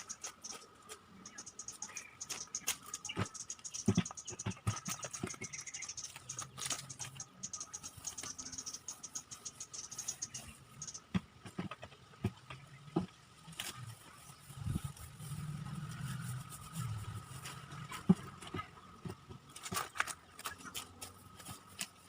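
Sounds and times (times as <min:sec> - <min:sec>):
brush scratching on wall: 0:14.7 - 0:18.2.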